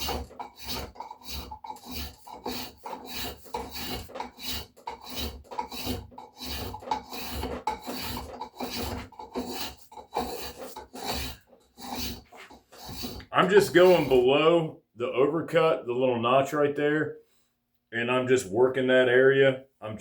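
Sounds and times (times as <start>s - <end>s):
spokeshave scraping wood: 0.0s - 14.5s.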